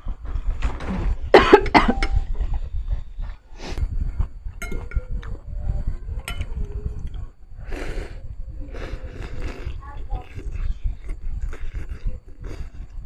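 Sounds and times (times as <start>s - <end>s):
person coughing: 1.4s - 2.2s.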